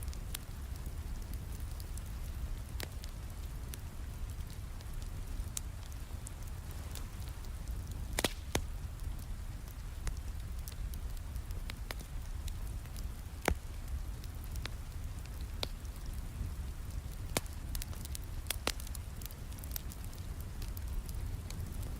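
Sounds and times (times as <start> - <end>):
wood fire crackling and popping: 0.0 - 21.9.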